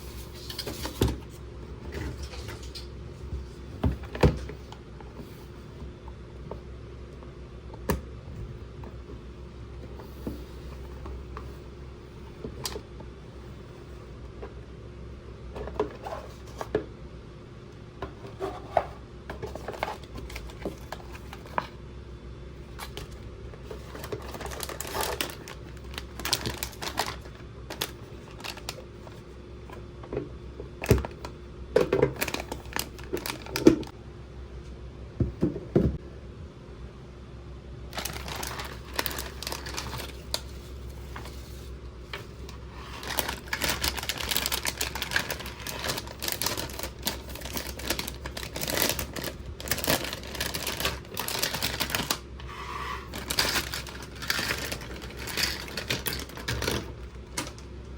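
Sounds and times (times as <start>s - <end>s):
packaging crinkling: 22.8s - 29.2s, 32.1s - 33.9s, 37.9s - 41.3s, 42.4s - 52.3s, 53.0s - 57.6s.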